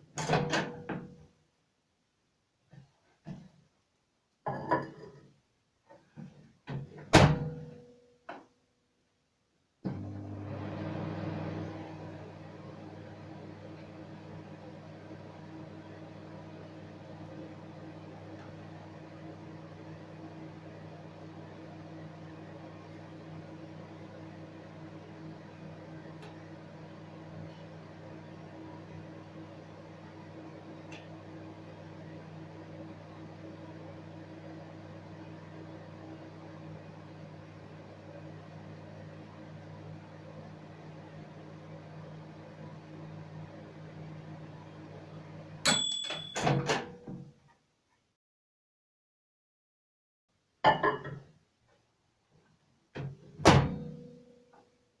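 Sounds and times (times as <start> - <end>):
microwave oven humming: 9.8 - 47.0
microwave end-of-cycle ring: 45.6 - 47.0.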